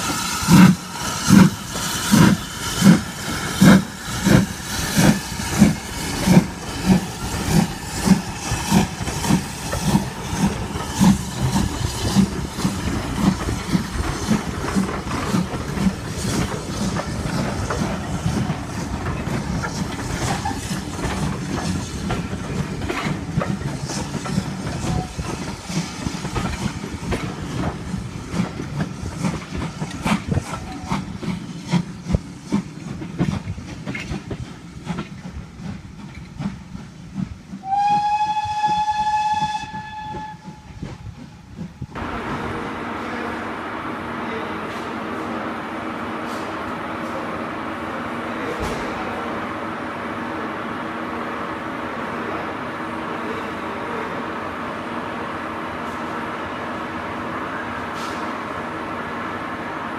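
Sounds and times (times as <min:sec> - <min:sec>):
train wheels clattering over rail joints: 0:00.0 - 0:37.7
steam locomotive whistle: 0:37.6 - 0:41.0.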